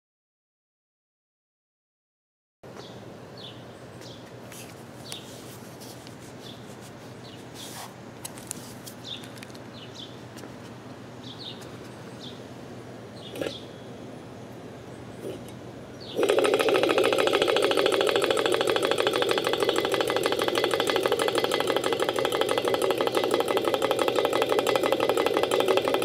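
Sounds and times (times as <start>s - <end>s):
small birds chirping: 2.7s - 5.5s, 6.3s - 7.9s, 8.9s - 10.3s, 11.2s - 16.4s.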